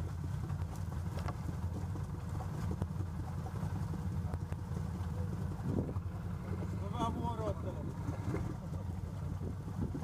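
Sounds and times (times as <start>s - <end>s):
atv engine rumbling: 0.0s - 10.0s.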